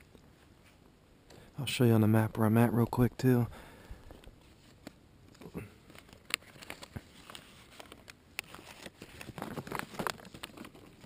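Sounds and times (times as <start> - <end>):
clicks and crinkling rustles: 4.0 - 11.0.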